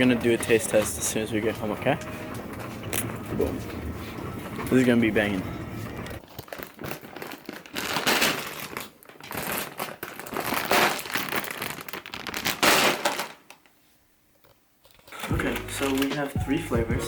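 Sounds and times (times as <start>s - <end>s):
crisp bags crinkling: 4.7s - 13.6s, 14.9s - 16.4s.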